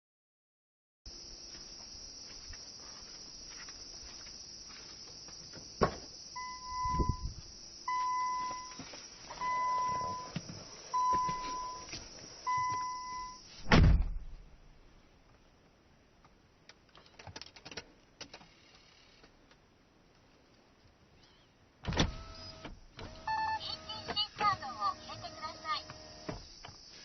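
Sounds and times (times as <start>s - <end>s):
car warning chime beeps: 6.4s - 7.3s, 7.9s - 8.8s, 9.4s - 13.4s, 23.2s - 26.2s
car door shutting: 9.4s - 14.4s, 21.8s - 26.7s.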